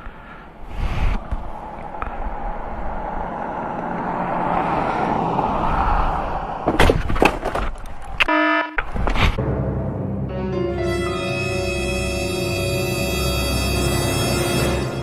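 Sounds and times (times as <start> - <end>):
vehicle passing by: 1.6 - 6.7.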